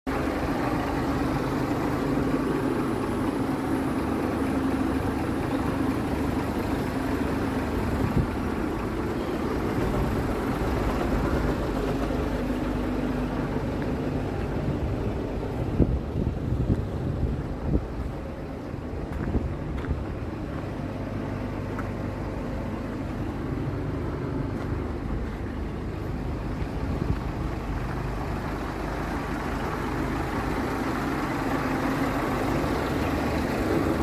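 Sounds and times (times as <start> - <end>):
diesel truck engine idling: 0.1 - 34.0.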